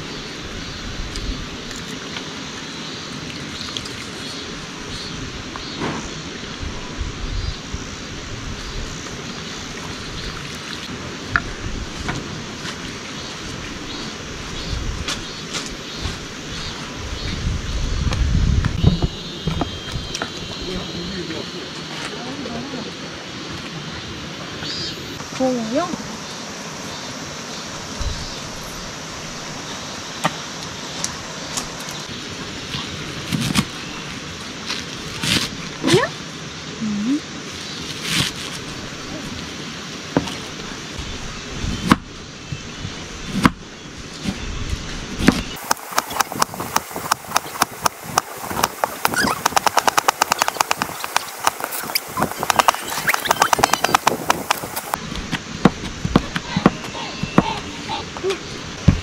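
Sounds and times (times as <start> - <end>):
mountain stream rushing: 0.0 - 17.6, 20.2 - 43.3, 44.8 - 59.0
wind rumbling on microphone: 0.0 - 22.2, 27.7 - 29.8, 31.0 - 59.0
sharp clicks: 45.6 - 55.0.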